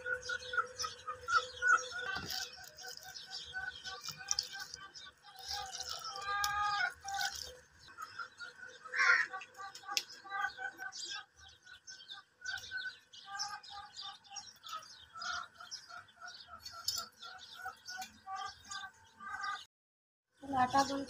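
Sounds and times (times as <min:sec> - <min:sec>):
small birds chirping: 0:00.0 - 0:19.7, 0:20.4 - 0:21.0.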